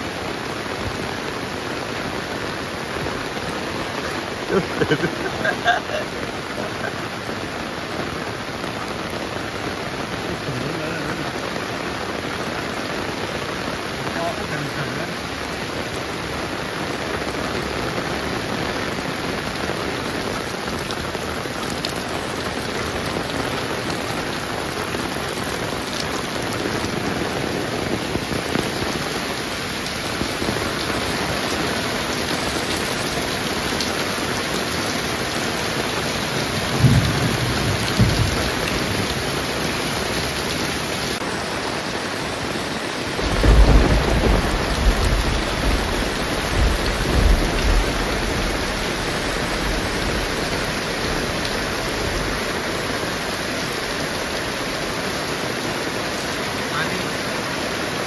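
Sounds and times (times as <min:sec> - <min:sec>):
heavy rain pouring: 0:00.0 - 0:58.0
thunder rumbling: 0:36.0 - 0:40.4, 0:43.1 - 0:52.5.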